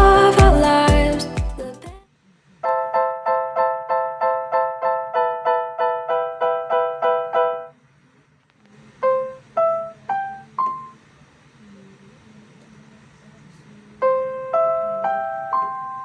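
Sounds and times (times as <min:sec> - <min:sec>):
keyboard chord struck repeatedly: 0:00.0 - 0:01.8, 0:02.7 - 0:07.7
rising keyboard notes: 0:00.0 - 0:01.8.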